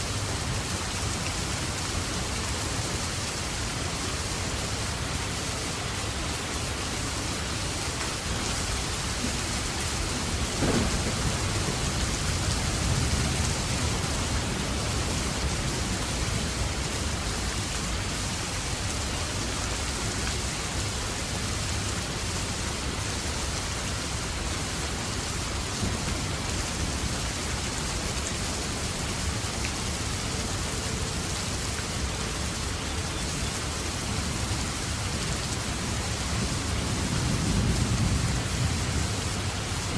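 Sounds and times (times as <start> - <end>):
heavy rain falling: 0.0 - 39.9
low thunder rumble: 9.2 - 16.0.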